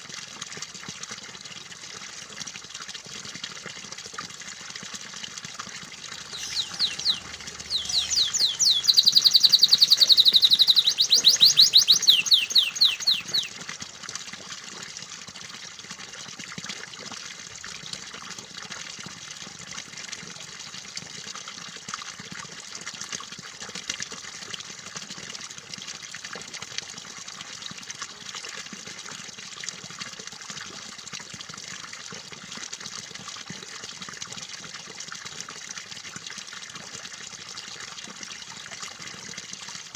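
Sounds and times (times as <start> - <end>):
trickling water: 0.0 - 39.9
canary singing trills: 6.2 - 13.5.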